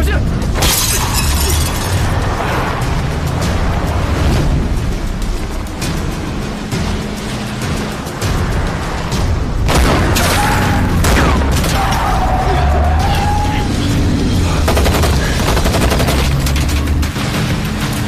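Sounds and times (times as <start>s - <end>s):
low droning score: 1.5s - 18.0s
gunfire and bangs: 9.6s - 11.8s, 14.5s - 18.0s.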